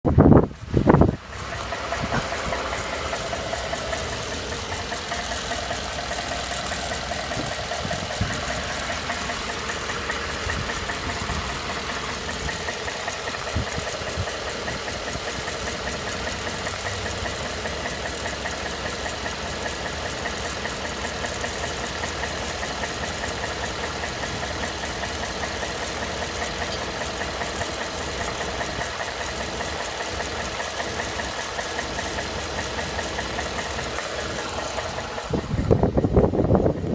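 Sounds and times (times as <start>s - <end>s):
truck engine running: 0.1s - 36.9s
engine knocking: 0.2s - 36.9s.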